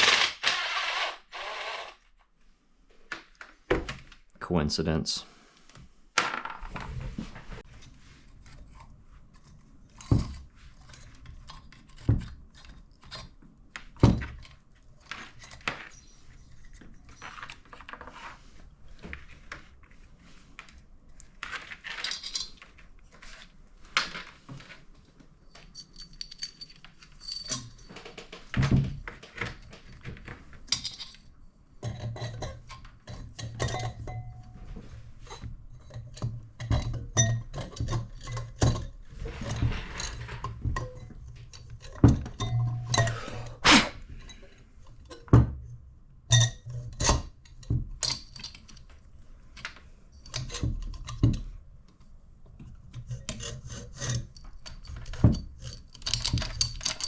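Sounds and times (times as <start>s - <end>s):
metal parts clinking: 21.8s - 22.8s, 25.5s - 28.1s, 30.7s - 32.6s, 54.3s - 57.0s.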